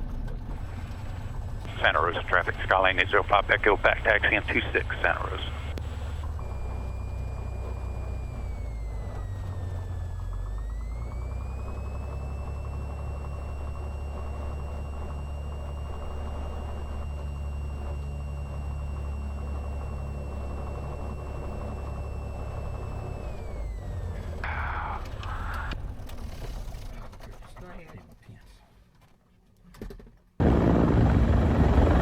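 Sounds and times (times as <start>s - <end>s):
propeller plane engine droning: 0.0s - 27.4s, 30.4s - 32.0s
thin high whine: 0.7s - 25.8s.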